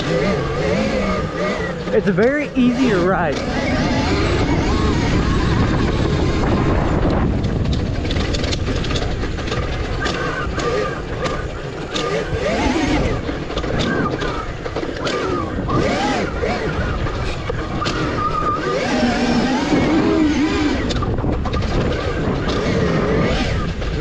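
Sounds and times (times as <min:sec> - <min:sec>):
electric motor whine: 0:00.0 - 0:24.0
clicks and rattles: 0:07.0 - 0:12.5.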